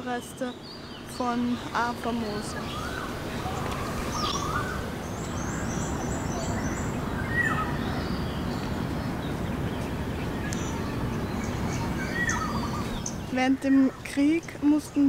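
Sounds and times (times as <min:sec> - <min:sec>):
birds calling: 0:00.0 - 0:15.0
steady background noise: 0:00.0 - 0:15.0.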